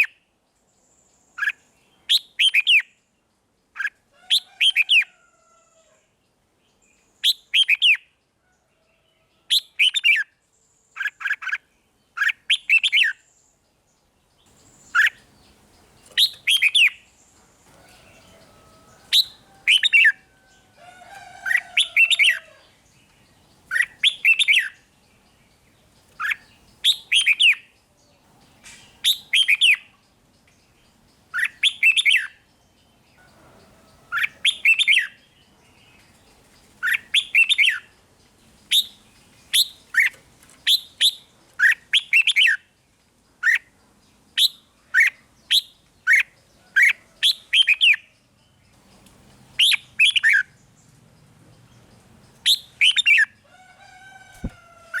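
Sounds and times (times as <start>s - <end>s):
bird singing whistled phrases: 1.4s - 2.9s, 7.2s - 8.0s, 26.2s - 27.6s, 52.4s - 53.3s.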